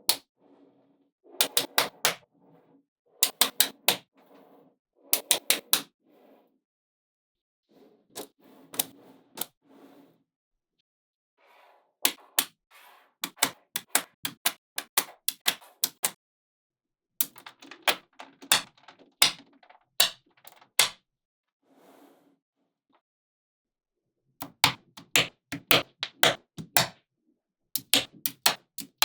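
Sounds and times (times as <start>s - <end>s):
magnetic balls clicking: 13.2s - 16.2s, 17.2s - 21.0s, 24.4s - 27.0s, 27.8s - 29.0s
balls rustling: 17.3s - 20.8s, 25.0s - 26.8s.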